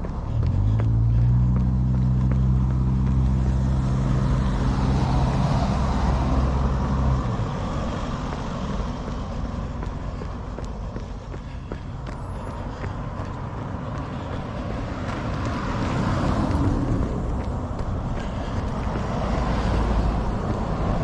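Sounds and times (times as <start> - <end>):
outdoor rushing noise: 0.0 - 21.0
vehicle engine running: 0.0 - 21.0.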